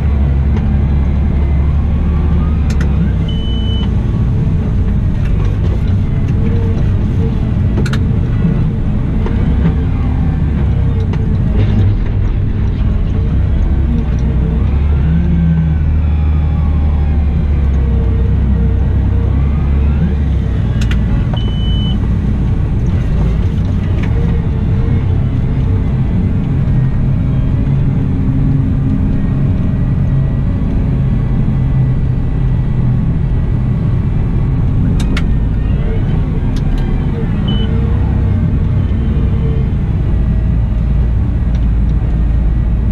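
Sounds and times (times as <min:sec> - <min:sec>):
wheel loader diesel engine running: 0:00.0 - 0:42.9
short high beep: 0:03.3 - 0:03.9, 0:21.4 - 0:22.0.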